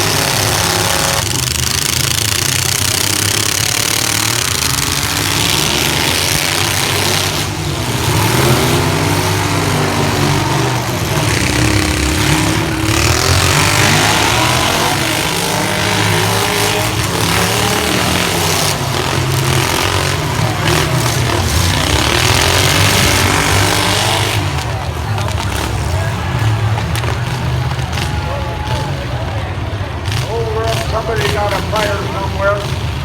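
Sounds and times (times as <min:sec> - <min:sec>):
pickup truck engines revving: 0:00.0 - 0:33.0.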